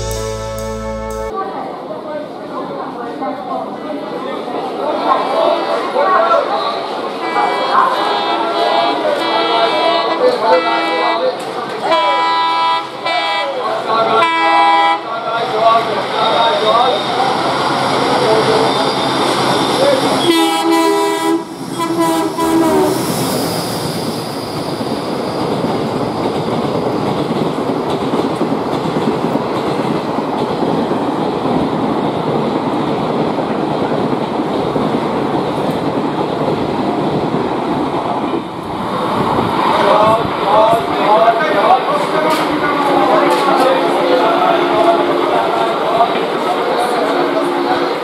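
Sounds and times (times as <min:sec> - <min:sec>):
diesel locomotive horn: 0:00.0 - 0:01.3, 0:08.0 - 0:11.2, 0:11.8 - 0:15.1, 0:20.2 - 0:23.0
train coaches rolling past: 0:00.0 - 0:48.0.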